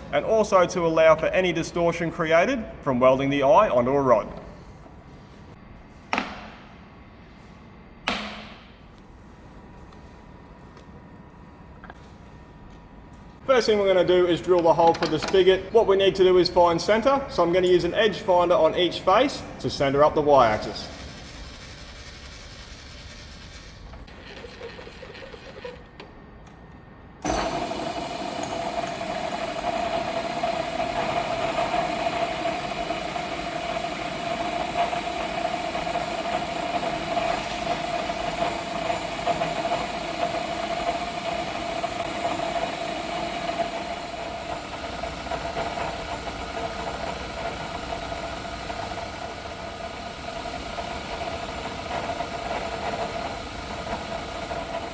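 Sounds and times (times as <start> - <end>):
low shop hum: 0.0 - 54.9
milling machine spindle whine: 14.6 - 26.0, 27.2 - 54.9.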